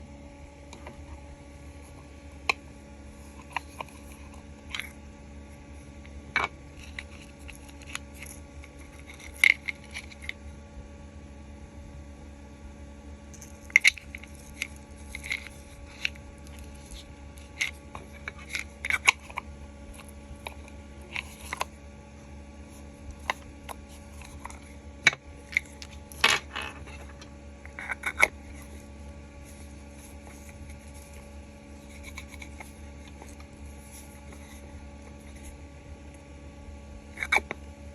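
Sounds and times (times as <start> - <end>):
plastic parts clicking and clinking: 24.1 - 28.8.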